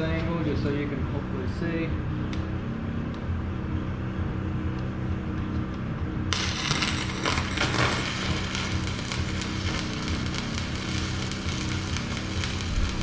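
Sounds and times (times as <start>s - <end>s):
steady low hum: 0.0s - 13.0s
welding arc crackling hiss: 6.3s - 13.0s.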